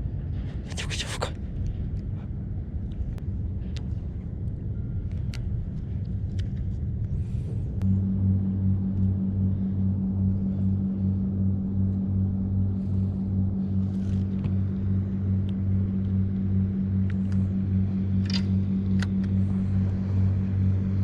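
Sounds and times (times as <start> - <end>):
engine hum pulsing: 0.0 - 21.0
low rumble: 0.0 - 21.0
light clicks: 18.2 - 19.4.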